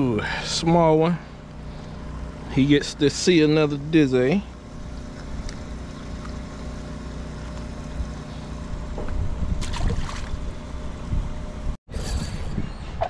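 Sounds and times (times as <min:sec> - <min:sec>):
boat engine idling: 0:00.0 - 0:11.6
sharp knocks or splashes: 0:09.0 - 0:10.4.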